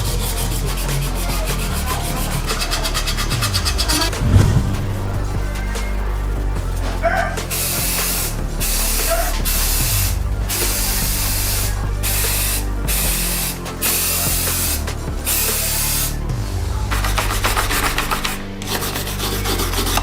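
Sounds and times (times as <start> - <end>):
spray paint can hissing: 4.0 - 16.2.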